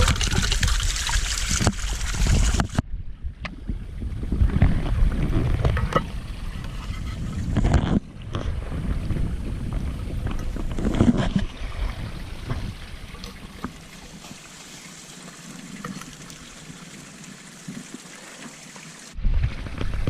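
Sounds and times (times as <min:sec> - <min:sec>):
wind buffeting microphone: 0:00.0 - 0:13.2.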